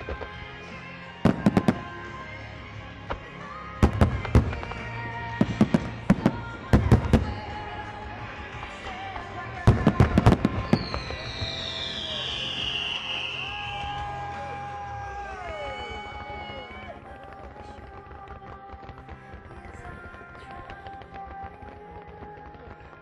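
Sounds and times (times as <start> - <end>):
fireworks bursting with sharp bangs: 0.0 - 23.0
music playing: 0.0 - 23.0
falling whistle-like tone: 10.6 - 16.9.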